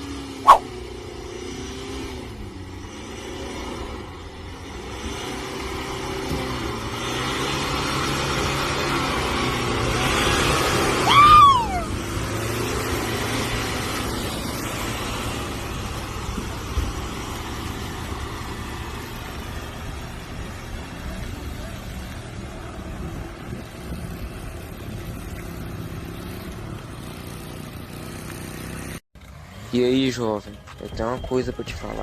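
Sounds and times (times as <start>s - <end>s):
off-road vehicle engine running: 0.0s - 32.0s
loud high-pitched cry: 11.0s - 11.9s.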